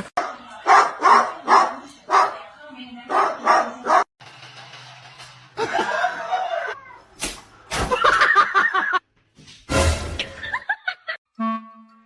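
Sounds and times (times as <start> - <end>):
person laughing: 5.6 - 6.8, 7.9 - 9.0, 10.4 - 11.2.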